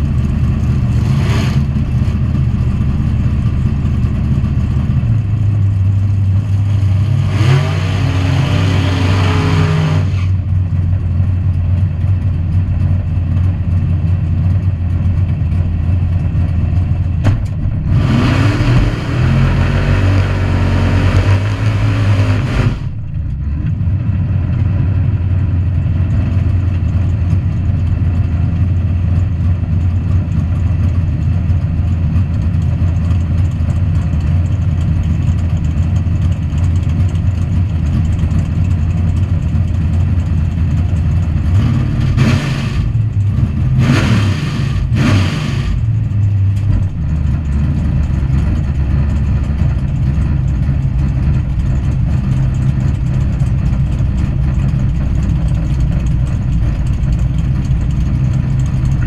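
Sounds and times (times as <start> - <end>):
race car engine revving: 0.0 - 2.4, 6.1 - 10.6, 17.2 - 23.0, 40.8 - 59.0
race car engine idling: 0.0 - 59.0.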